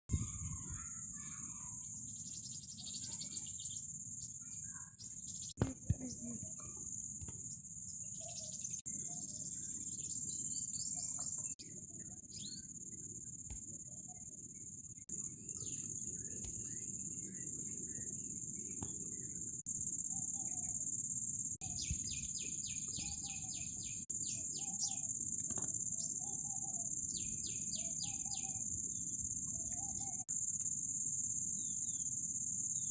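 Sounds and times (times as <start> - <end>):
insects chirring: 0.1 - 32.9
birds calling: 21.6 - 25.2.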